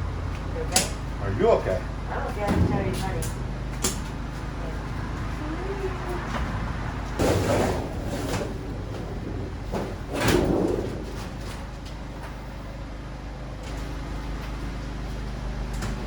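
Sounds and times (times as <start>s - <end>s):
steady low hum: 0.0s - 16.0s
loud scraping clatter: 6.4s - 12.1s.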